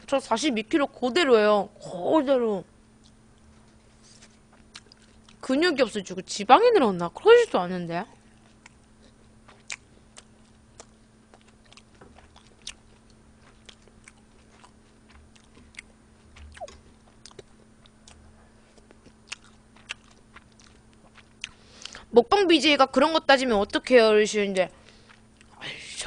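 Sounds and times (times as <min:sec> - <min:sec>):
faint low hum: 0:00.0 - 0:26.0
mouth clicks and smacks chewing: 0:04.6 - 0:05.4, 0:09.5 - 0:18.2, 0:18.8 - 0:22.0.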